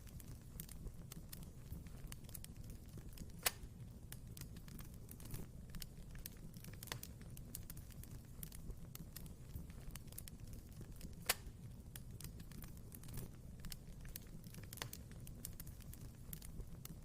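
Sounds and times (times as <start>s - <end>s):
fire crackling: 0.0s - 17.0s
wood fire rumbling: 0.0s - 17.0s.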